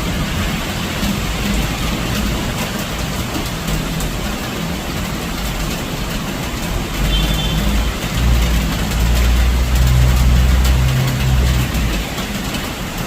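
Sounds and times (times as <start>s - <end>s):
rain: 0.0s - 13.0s.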